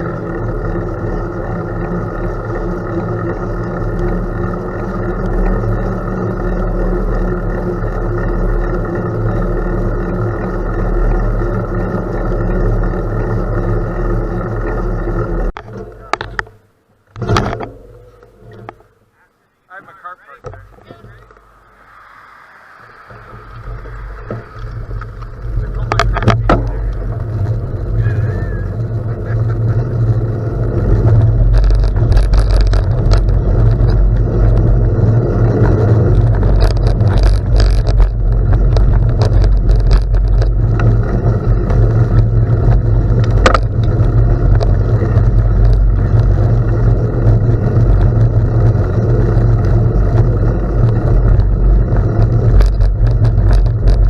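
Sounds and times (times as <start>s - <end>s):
tyre noise on gravel: 20.6s - 54.0s
wind buffeting microphone: 20.8s - 54.0s.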